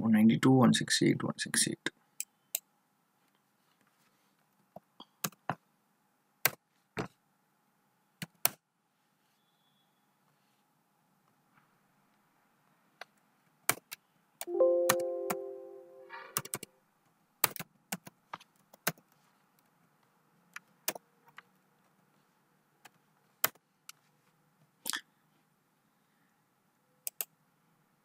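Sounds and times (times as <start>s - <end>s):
pitched ringing tone: 14.5s - 16.4s.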